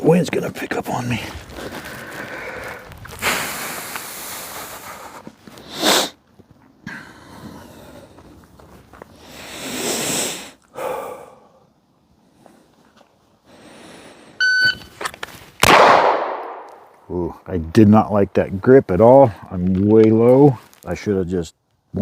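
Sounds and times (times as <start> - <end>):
short sharp hiss: 5.6 - 6.2.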